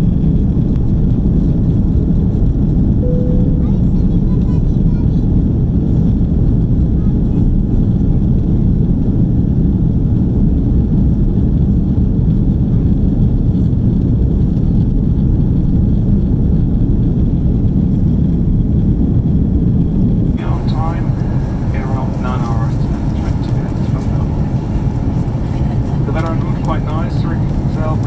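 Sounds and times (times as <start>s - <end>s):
airplane cabin roar: 0.1s - 9.2s, 16.2s - 28.0s.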